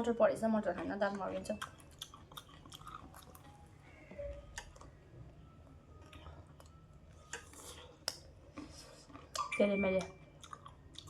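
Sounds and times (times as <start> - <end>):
person chewing crunchy snack: 1.6 - 3.6, 6.0 - 9.5, 10.3 - 11.0.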